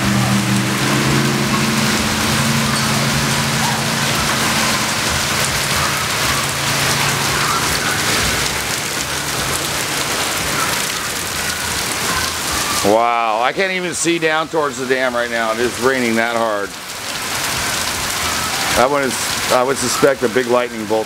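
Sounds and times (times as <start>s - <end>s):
low steady hum: 0.0s - 10.1s
heavy rain pounding on surfaces: 0.0s - 21.0s.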